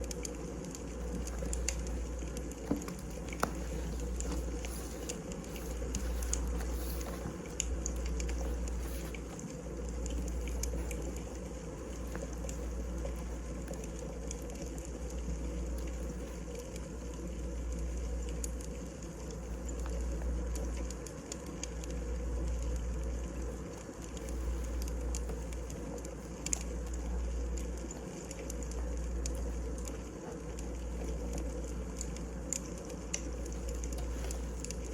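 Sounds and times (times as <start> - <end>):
burning logs popping: 0.0 - 22.2
wood fire crackling: 0.0 - 34.9.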